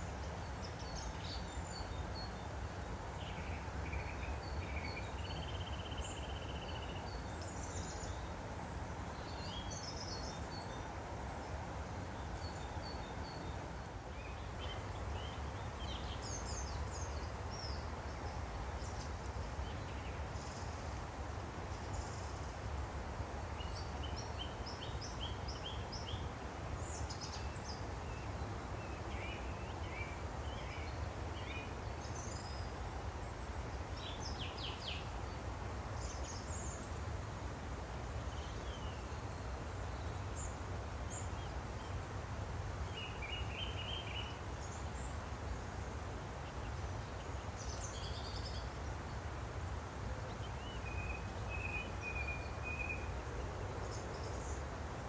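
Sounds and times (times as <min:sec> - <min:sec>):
stream flowing: 0:00.0 - 0:55.0.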